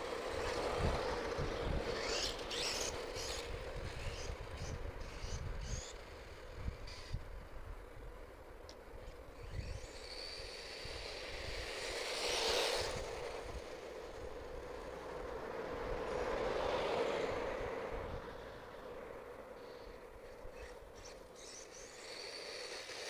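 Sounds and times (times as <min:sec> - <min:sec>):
electric toy truck motor whine: 0:00.0 - 0:08.0, 0:09.0 - 0:14.9, 0:19.6 - 0:23.0.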